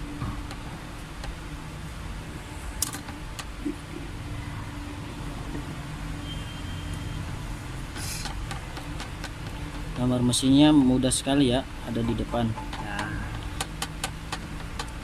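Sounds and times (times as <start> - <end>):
low mechanical hum: 0.0 - 15.0
sharp clicks: 12.5 - 15.0.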